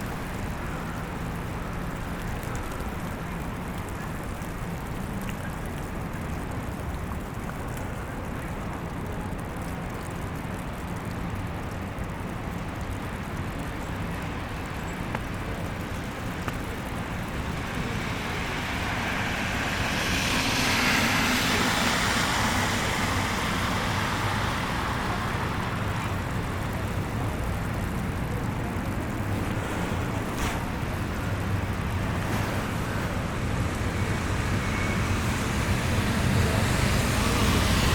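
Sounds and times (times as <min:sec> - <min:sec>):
city traffic rumble: 0:00.0 - 0:37.9
vehicle passing with hiss: 0:16.8 - 0:27.1, 0:29.2 - 0:37.9.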